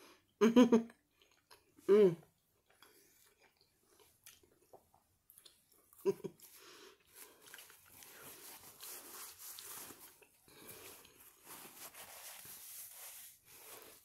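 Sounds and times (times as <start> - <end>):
person chewing food: 0.9 - 11.6.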